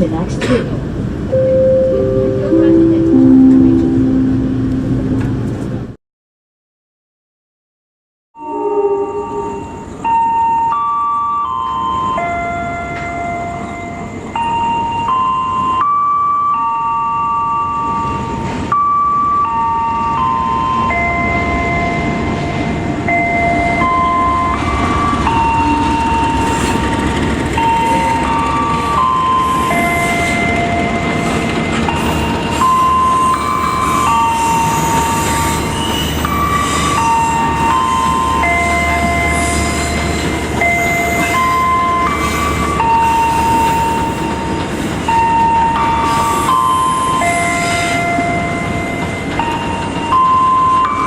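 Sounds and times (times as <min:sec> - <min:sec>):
train carriage rumble: 0:00.0 - 0:06.0, 0:08.5 - 0:51.0
held tones changing pitch: 0:01.3 - 0:05.6
synth background music: 0:01.3 - 0:05.9.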